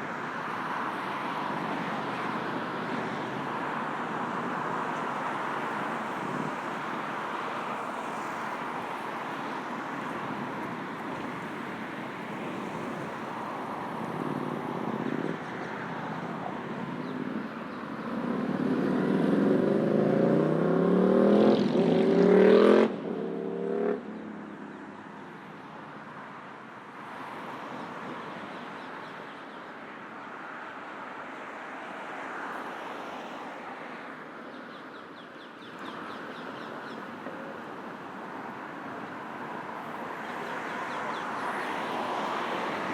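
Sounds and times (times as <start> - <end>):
road traffic: 0.0 - 42.9
vehicle engine accelerating hard: 18.2 - 24.1.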